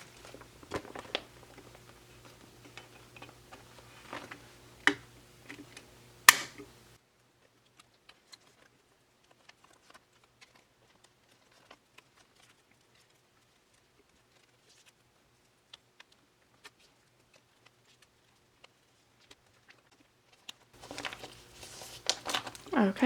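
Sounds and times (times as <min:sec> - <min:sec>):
plastic sleeves taps and clicks: 0:00.0 - 0:06.7
background hum: 0:00.0 - 0:07.0, 0:20.8 - 0:23.0.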